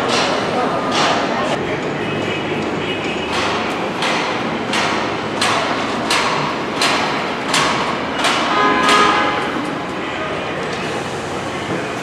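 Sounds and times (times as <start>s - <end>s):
heavy hammering: 3.2s - 9.9s.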